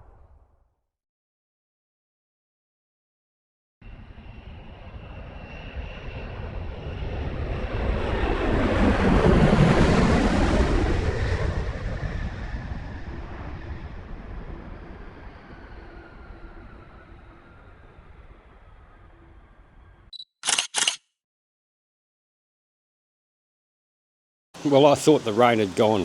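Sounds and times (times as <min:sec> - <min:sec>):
aircraft passing overhead: 0:03.8 - 0:20.1, 0:24.6 - 0:26.0.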